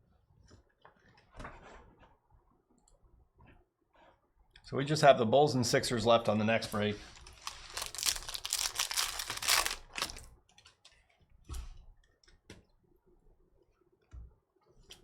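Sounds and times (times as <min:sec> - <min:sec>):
foil wrapper tearing and crinkling: 0:07.1 - 0:10.3.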